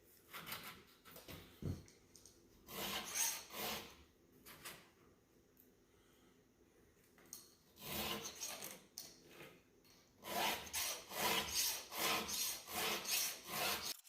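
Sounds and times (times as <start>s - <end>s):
file rasping on chainsaw chain: 2.7s - 3.9s, 7.8s - 8.8s, 10.2s - 14.0s.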